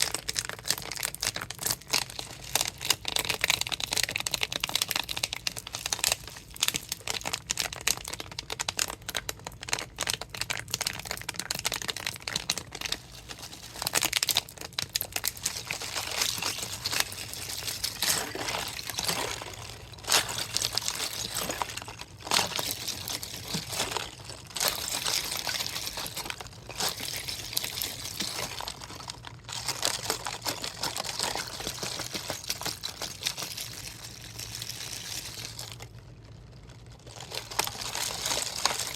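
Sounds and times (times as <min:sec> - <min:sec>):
plastic bottle crinkling: 0:00.0 - 0:38.9
water and ice sloshing: 0:12.0 - 0:36.0, 0:36.9 - 0:38.9.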